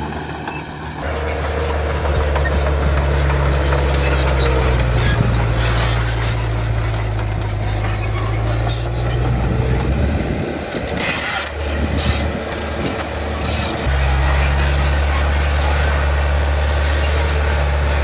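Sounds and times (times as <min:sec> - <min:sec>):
diesel machinery engine drone: 0:00.0 - 0:18.0
scraping and clanking: 0:00.0 - 0:18.0.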